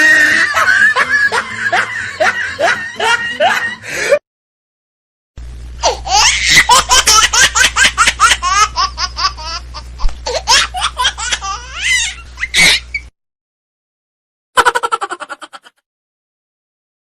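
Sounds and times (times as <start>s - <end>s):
high-pitched laughter: 0.0s - 4.1s, 5.8s - 13.1s, 14.6s - 15.8s
steady low hum: 5.4s - 13.1s.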